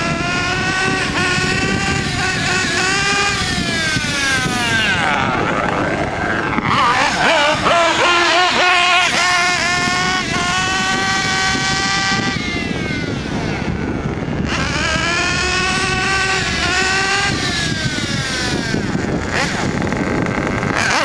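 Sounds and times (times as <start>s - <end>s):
model car engine revving high: 0.0s - 21.0s.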